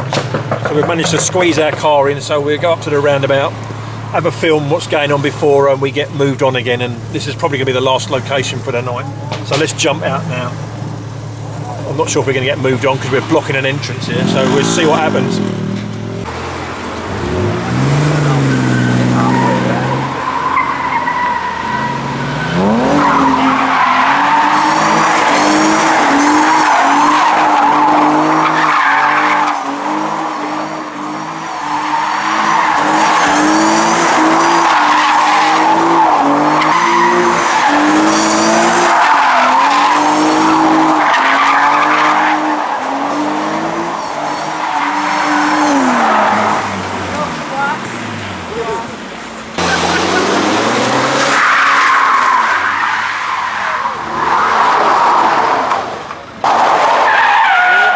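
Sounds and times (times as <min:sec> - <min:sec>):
car engine revving: 0:00.0 - 0:57.9
tyre squeal: 0:08.9 - 0:10.2, 0:17.7 - 0:48.0, 0:49.6 - 0:57.9.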